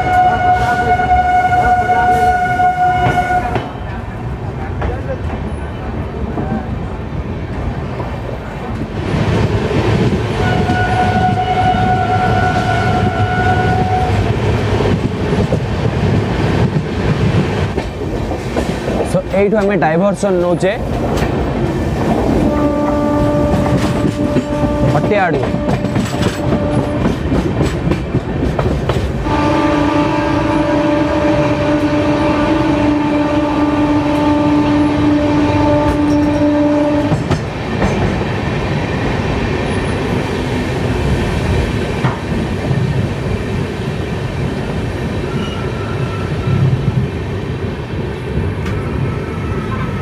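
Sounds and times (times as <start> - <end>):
locomotive horn blast: 0.0 - 3.8, 10.4 - 14.2, 22.4 - 27.2, 29.2 - 37.2
train wheels rumbling and clattering: 0.0 - 50.0.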